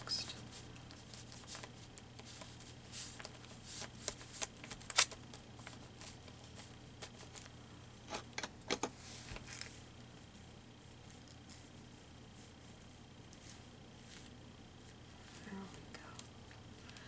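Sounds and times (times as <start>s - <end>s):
paper rustling: 0.3s - 7.5s.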